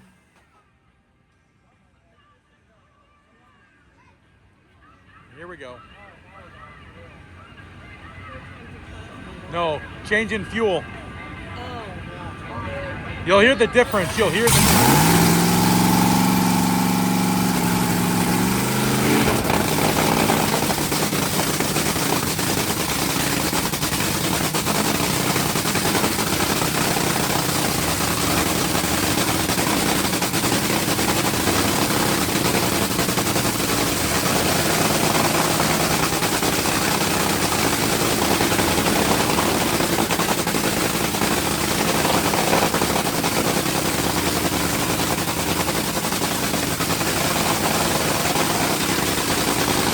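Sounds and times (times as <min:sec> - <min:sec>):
dragster engine crackling rattle: 0:13.9 - 0:49.9.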